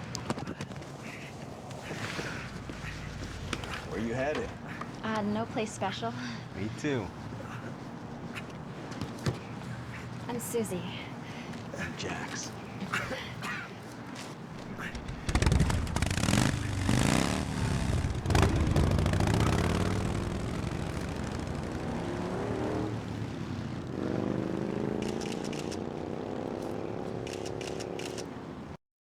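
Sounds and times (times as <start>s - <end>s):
motorcycle engine revving: 2.2s - 5.0s, 14.6s - 28.2s.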